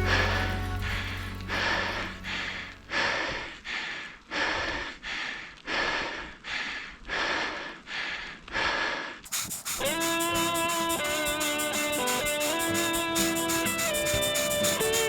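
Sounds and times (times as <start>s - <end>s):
low song notes: 0.0s - 3.1s
hard rhythmic breathing: 0.0s - 15.0s.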